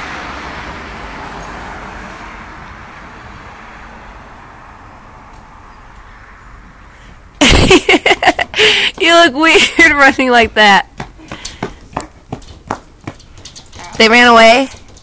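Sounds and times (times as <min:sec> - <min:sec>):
vehicle rushing on road: 0:00.0 - 0:10.4.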